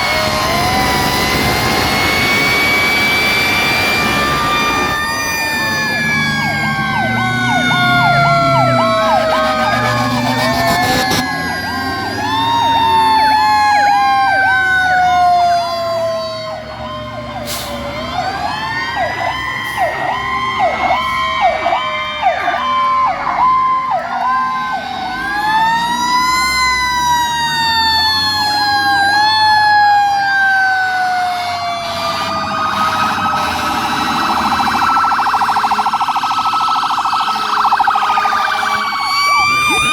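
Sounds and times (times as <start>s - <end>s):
warbling siren yelps: 0.0s - 17.0s, 25.1s - 39.9s
wailing fire truck sirens: 0.0s - 39.9s.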